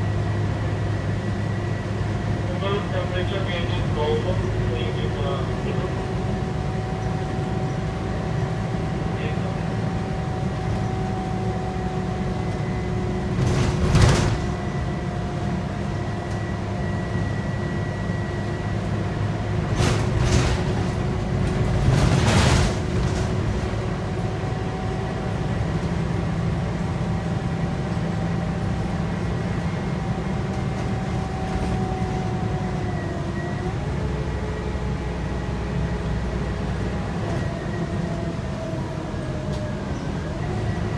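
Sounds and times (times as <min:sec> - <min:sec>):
bus diesel engine rumble and whine: 0:00.0 - 0:40.9.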